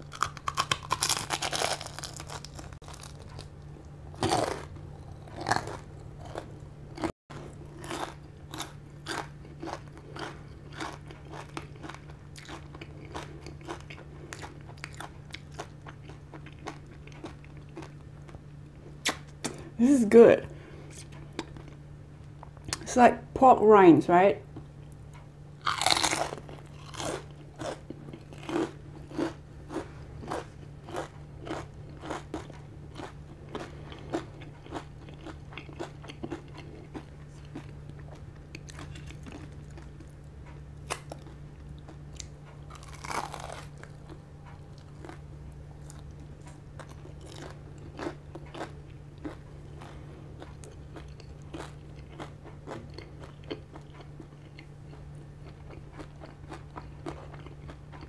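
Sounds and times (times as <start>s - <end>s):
crunching crispy skin: 0.0s - 18.4s, 25.6s - 37.7s, 42.7s - 45.2s.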